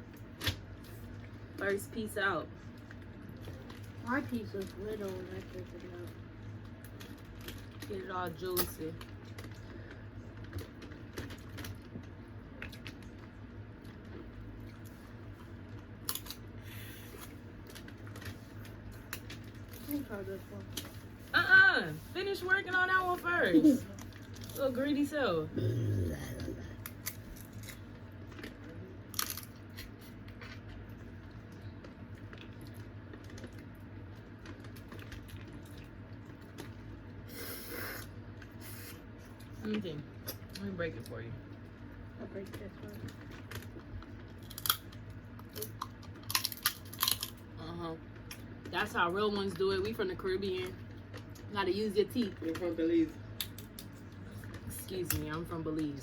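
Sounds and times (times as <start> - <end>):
steady low hum: 0.0 - 56.0
eating sounds: 25.5 - 39.6
crab shells cracking: 26.8 - 30.8, 43.1 - 47.5.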